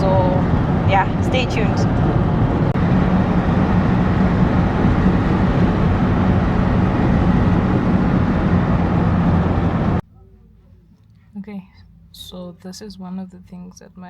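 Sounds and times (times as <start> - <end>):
road noise: 0.0 - 10.0
vehicle engine hum: 0.0 - 10.0.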